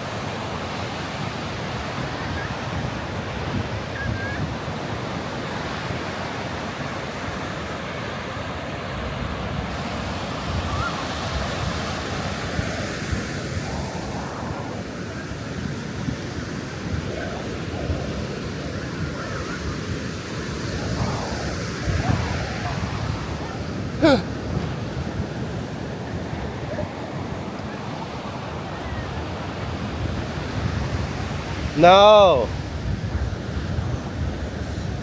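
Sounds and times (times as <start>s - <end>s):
wind buffeting microphone: 8.8s - 31.8s, 32.4s - 35.0s.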